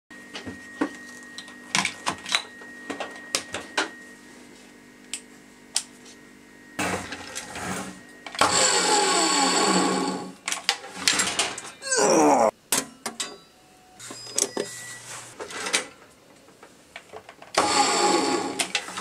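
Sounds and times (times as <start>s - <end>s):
chop saw motor running: 7.6s - 10.3s, 17.6s - 18.8s.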